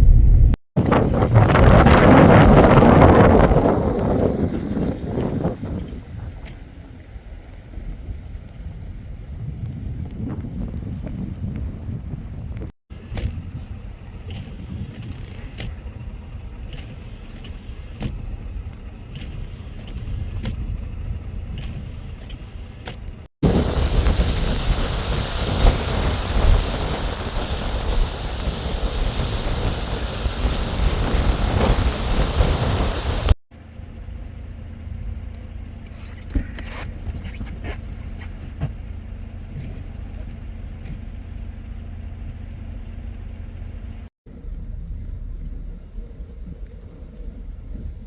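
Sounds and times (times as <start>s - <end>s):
strong wind on microphone: 0.0s - 6.6s, 7.8s - 16.3s, 23.4s - 33.4s, 44.3s - 48.0s
low rumble: 0.0s - 48.0s.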